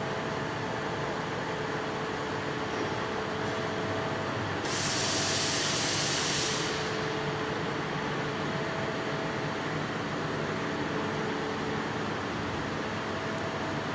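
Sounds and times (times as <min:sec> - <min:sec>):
faint steady whines: 0:00.0 - 0:13.9
loud hiss: 0:04.6 - 0:07.0.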